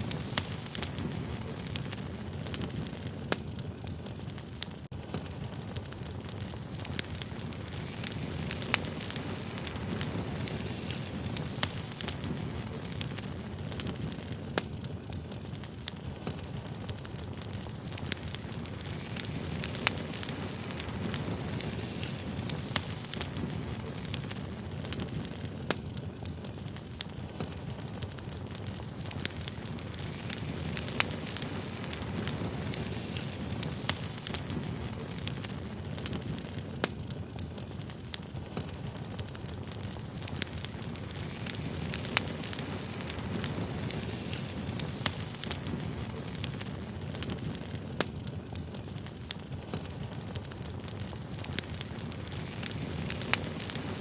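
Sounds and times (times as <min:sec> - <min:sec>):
firewood burning: 0:00.0 - 0:54.0
low rumble of flames: 0:00.0 - 0:54.0.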